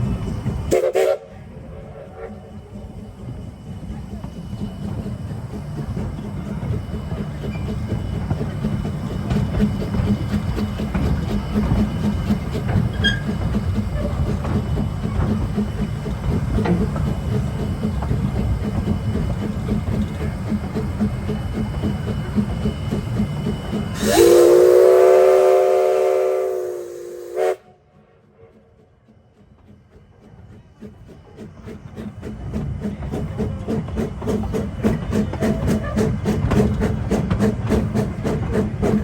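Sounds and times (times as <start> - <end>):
steam train rumbling and clattering: 0.0 - 39.0
steam whistle blast: 0.7 - 1.3, 24.0 - 27.8.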